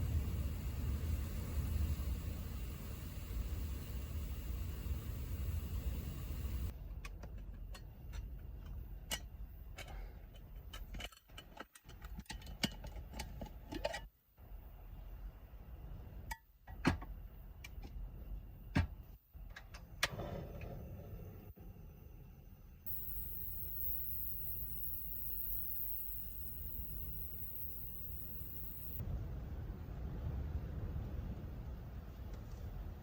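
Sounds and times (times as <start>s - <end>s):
steady low rumble: 0.0s - 10.7s, 20.3s - 33.0s.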